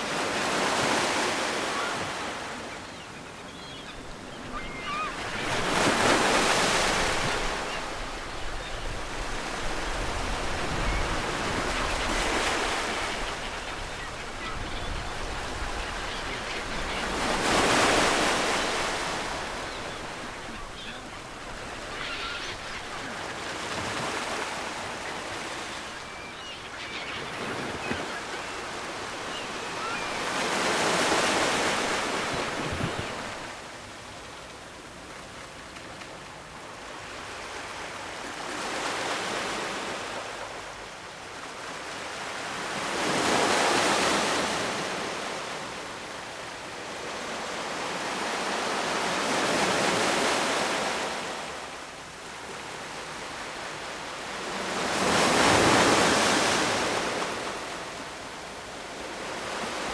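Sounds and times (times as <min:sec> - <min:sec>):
ocean waves breaking on shore: 0:00.0 - 0:35.5, 0:36.9 - 0:59.9.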